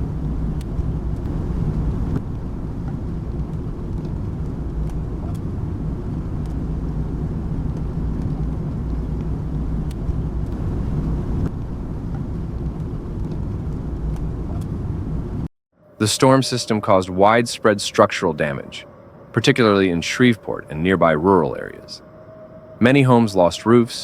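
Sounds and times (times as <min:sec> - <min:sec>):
car rumbling on the move: 0:00.0 - 0:16.0.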